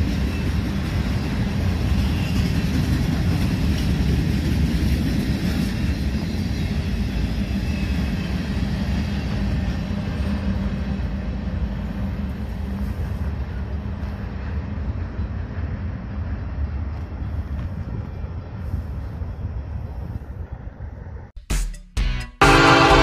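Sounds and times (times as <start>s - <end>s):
train wheels rumbling on rail: 0.0s - 21.3s.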